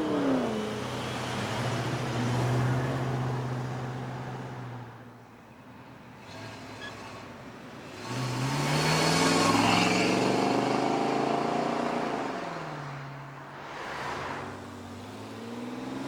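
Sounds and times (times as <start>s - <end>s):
car engine revving past: 8.1s - 16.0s.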